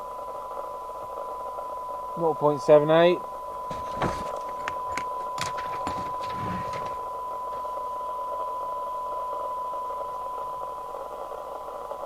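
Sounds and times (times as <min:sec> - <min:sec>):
radio hiss: 0:02.1 - 0:07.8.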